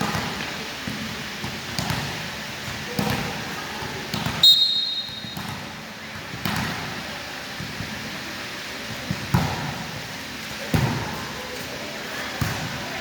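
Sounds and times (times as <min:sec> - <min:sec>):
volleyball thuds on court: 0:04.1 - 0:06.9, 0:08.9 - 0:10.0.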